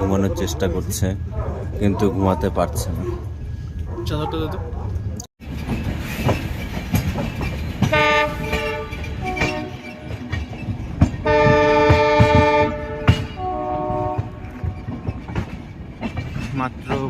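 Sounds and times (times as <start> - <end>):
moving train rumble: 0.0 - 17.0
wheels clacking over rail joints: 0.0 - 17.0
train horn blasts: 7.9 - 10.3, 11.2 - 15.0.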